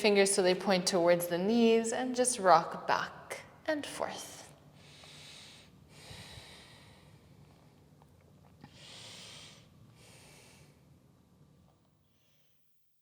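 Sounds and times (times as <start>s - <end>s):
faint steady hum: 0.0s - 13.0s
person breathing: 4.8s - 7.4s, 8.7s - 10.9s.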